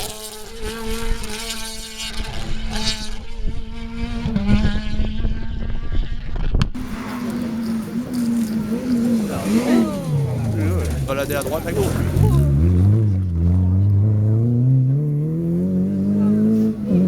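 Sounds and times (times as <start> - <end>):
rally car engine revving: 0.0 - 17.0
sharp engine crackles: 6.1 - 14.5.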